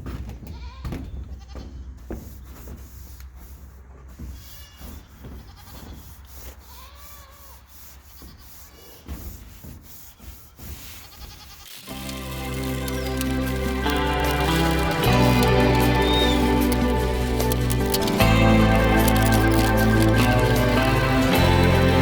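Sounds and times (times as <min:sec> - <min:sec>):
brooms scrubbing a roof: 0:01.6 - 0:22.0
farm animal calling: 0:11.4 - 0:22.0.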